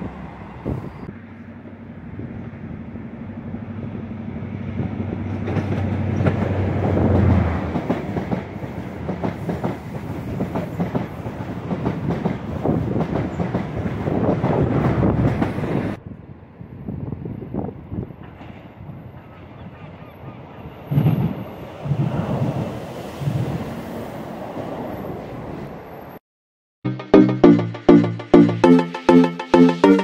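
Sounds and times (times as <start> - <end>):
diesel train engine hum: 0.0 - 10.2.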